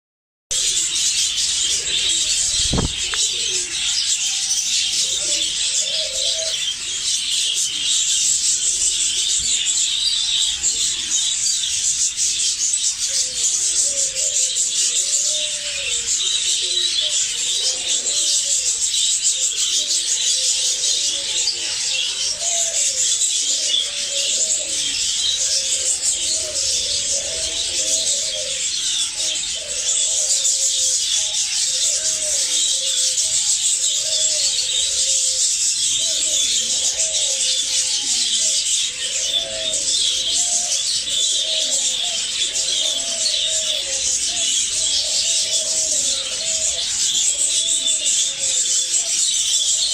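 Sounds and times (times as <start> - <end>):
low cooing call: 0.6 - 4.3, 4.9 - 6.8, 13.3 - 18.6, 20.4 - 30.9, 34.0 - 35.4, 36.0 - 49.1.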